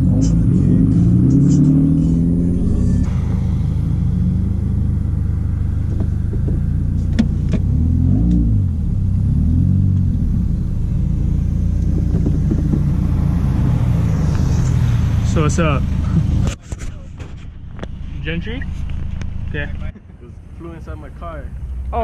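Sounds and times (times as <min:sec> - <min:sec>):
car engine revving: 0:00.0 - 0:16.6.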